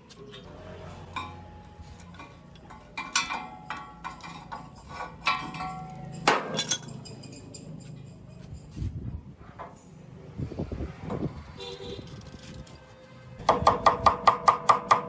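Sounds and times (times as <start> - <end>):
metal parts clinking: 1.1 - 8.8.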